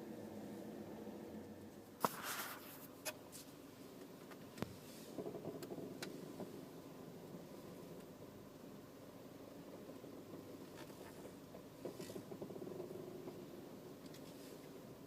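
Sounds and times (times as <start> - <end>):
steady low hum: 0.0 - 15.0
car creaking while turning: 4.2 - 8.3, 9.5 - 14.8.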